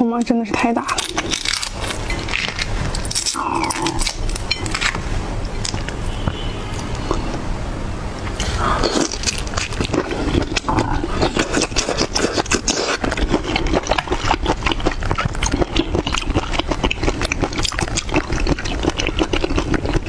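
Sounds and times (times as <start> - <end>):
chewing shrimp wet clicks: 8.2 - 20.0.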